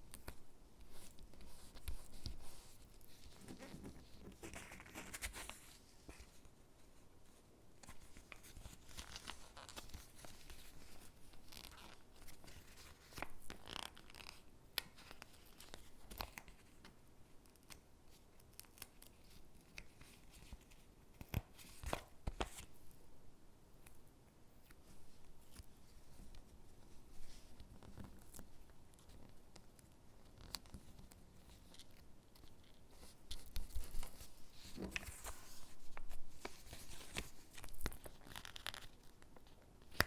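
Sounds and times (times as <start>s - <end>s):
paper rustling: 0.2s - 6.4s, 32.4s - 40.0s.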